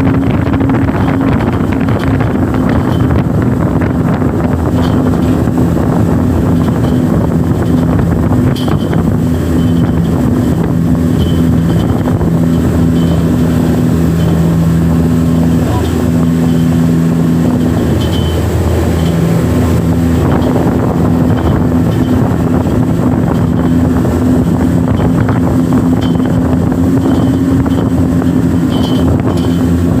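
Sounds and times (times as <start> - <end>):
motorboat engine drone: 0.0 - 30.0.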